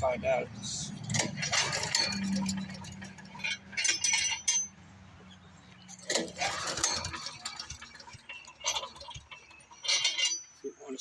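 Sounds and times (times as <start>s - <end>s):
light metallic clinking: 0.9s - 4.8s, 5.7s - 10.6s.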